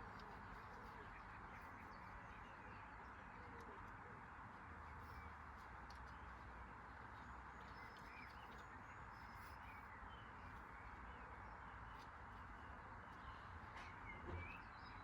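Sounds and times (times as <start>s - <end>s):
small ticks: 3.4s - 9.7s
faint bird chirps: 7.1s - 15.0s.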